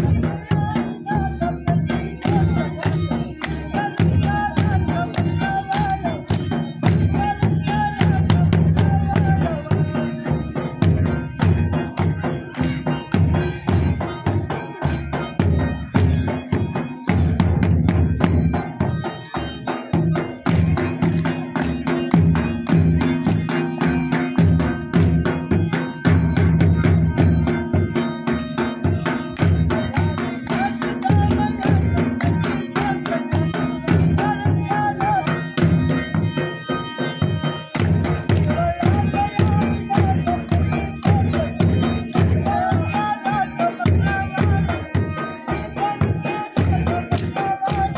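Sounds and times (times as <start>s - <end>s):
drums beaten in quick rhythm: 0.0s - 47.9s
wavering high melody: 0.0s - 47.9s.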